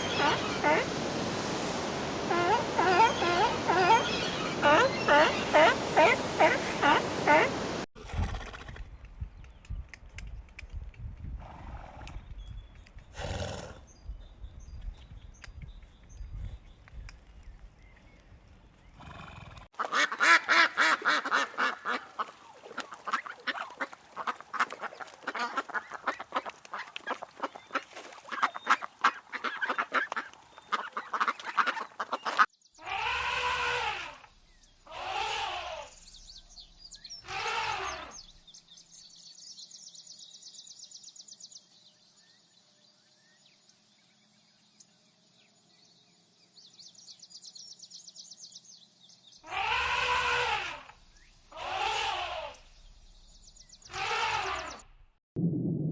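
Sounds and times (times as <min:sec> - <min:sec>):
ducks quacking: 0:02.3 - 0:07.6, 0:19.8 - 0:34.2, 0:49.5 - 0:52.6
drawn-out duck calls: 0:19.7 - 0:34.2, 0:34.9 - 0:35.9, 0:37.3 - 0:38.1, 0:49.4 - 0:52.7, 0:53.9 - 0:54.9.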